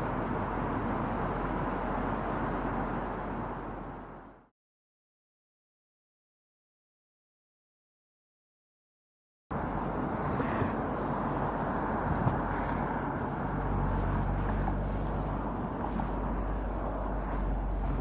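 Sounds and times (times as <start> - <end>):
car tyre and wind noise: 9.5 - 18.0
low hum: 9.5 - 18.0.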